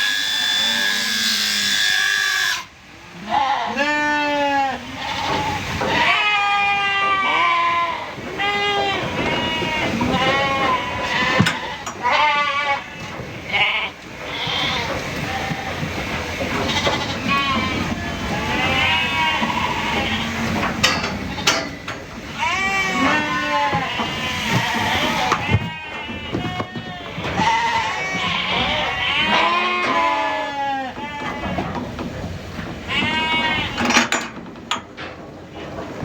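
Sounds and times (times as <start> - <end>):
sheep bleating: 16.6 - 21.7, 22.3 - 31.6.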